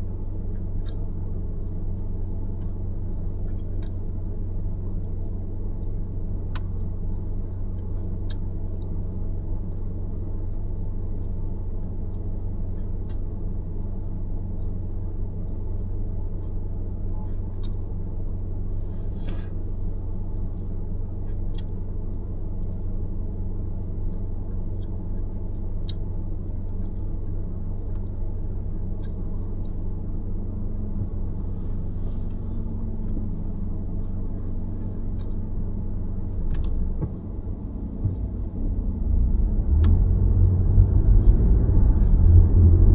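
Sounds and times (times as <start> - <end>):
car driving rumble: 0.0 - 42.9
faint rising whine: 29.9 - 42.9.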